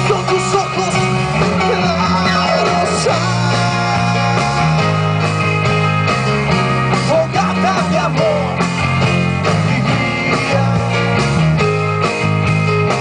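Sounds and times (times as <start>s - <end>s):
person singing: 0.0s - 5.2s, 7.0s - 8.6s
rock band playing: 0.0s - 13.0s.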